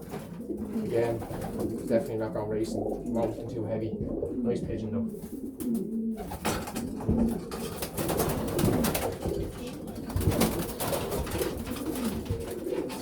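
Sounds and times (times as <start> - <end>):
pigeons cooing: 0.0 - 13.0
birds rustling and clicking: 5.1 - 13.0.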